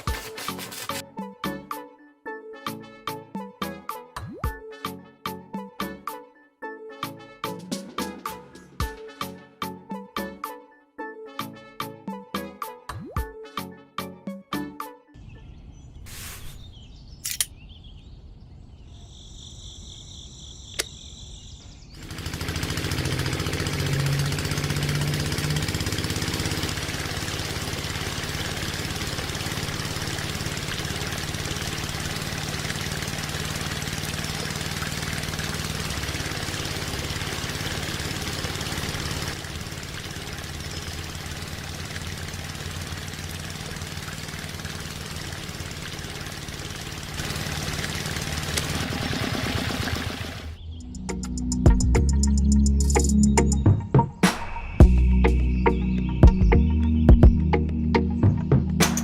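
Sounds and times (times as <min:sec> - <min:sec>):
small engine running: 0:00.0 - 0:01.1, 0:21.9 - 0:53.6.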